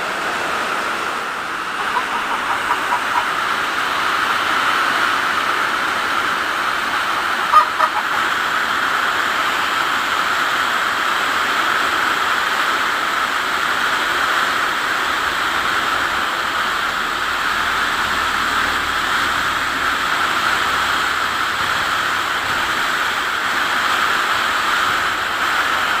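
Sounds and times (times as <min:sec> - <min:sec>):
heavy rain pouring: 0:00.0 - 0:26.0
brief pitched call: 0:06.9 - 0:08.2.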